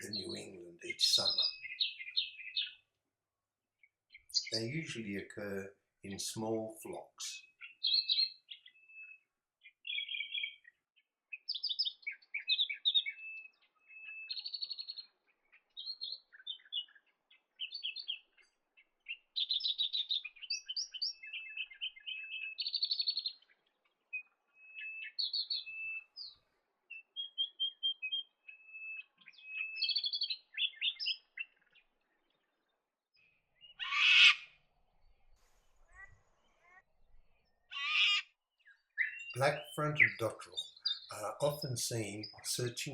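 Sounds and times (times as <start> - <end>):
harsh bird call: 0.0 - 2.7, 4.4 - 8.3, 39.0 - 42.9
sandpipers chirping: 0.0 - 2.7, 4.3 - 5.2.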